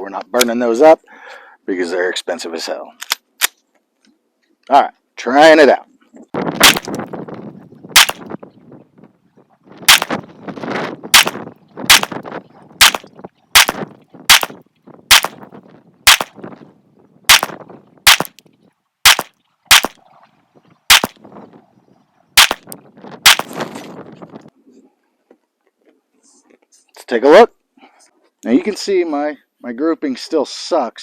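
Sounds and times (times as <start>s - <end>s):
pistol shots with echo: 6.6s - 7.0s, 8.0s - 8.2s, 9.9s - 10.1s, 11.1s - 12.2s, 12.8s - 15.4s, 16.1s - 16.4s, 17.3s - 18.3s, 19.1s - 20.0s, 20.9s - 21.2s, 22.4s - 22.7s, 23.3s - 23.5s.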